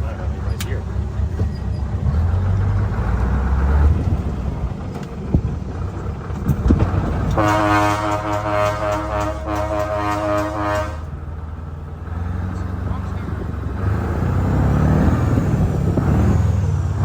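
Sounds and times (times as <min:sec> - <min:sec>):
diesel truck engine running: 0:00.0 - 0:17.0
truck horn blast: 0:07.3 - 0:11.2.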